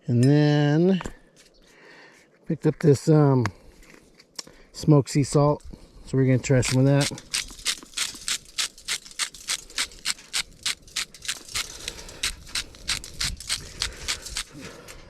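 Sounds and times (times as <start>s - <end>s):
salt grating rattle: 6.6s - 14.6s.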